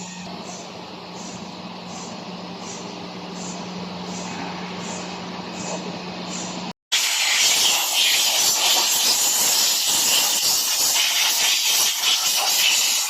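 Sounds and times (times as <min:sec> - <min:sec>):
loud steady hiss: 0:06.9 - 0:13.0.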